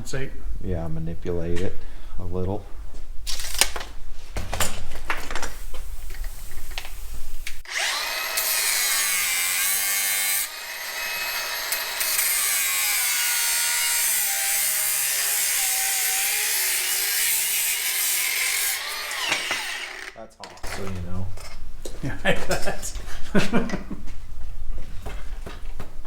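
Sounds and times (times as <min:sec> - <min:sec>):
power tool cutting metal: 0:07.6 - 0:20.2.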